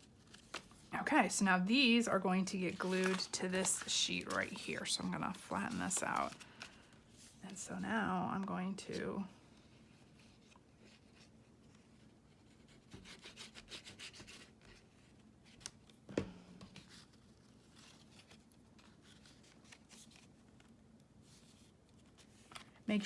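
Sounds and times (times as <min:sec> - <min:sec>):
light scratching on paper: 0:09.9 - 0:15.1.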